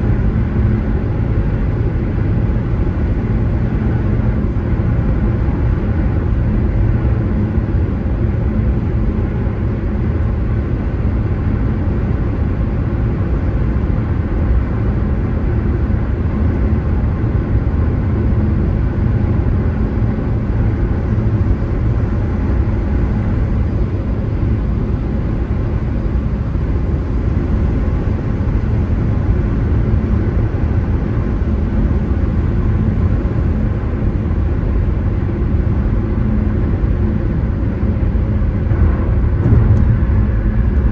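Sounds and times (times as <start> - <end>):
car tyre and engine rumble: 31.7 - 40.9.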